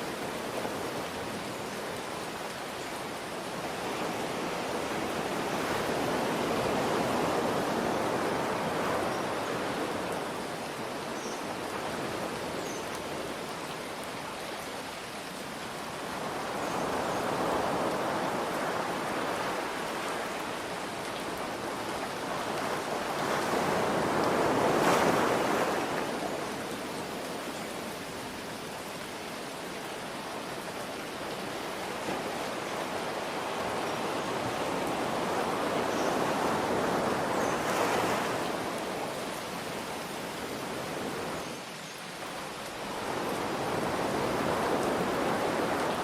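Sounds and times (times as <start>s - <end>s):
steady rain: 0.0s - 46.0s
ocean waves washing in: 15.4s - 28.4s, 30.5s - 46.0s.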